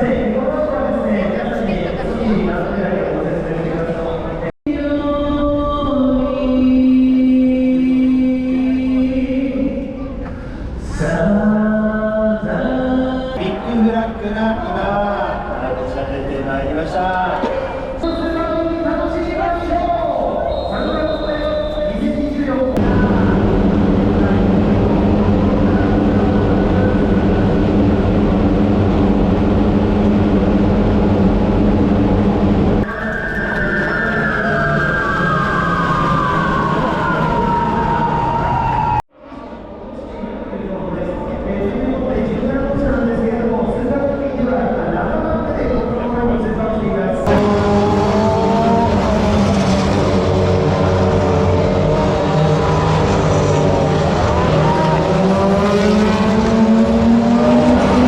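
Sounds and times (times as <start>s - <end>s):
race car engines droning: 0.0s - 39.0s, 39.7s - 58.0s
vehicle engine drone: 22.6s - 38.8s, 47.2s - 58.0s.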